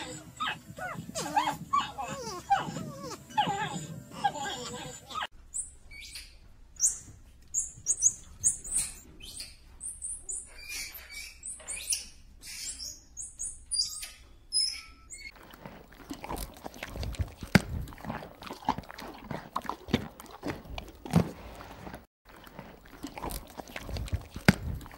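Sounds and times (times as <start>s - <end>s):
monkey high-pitched peeps and chirps: 0.0s - 15.3s.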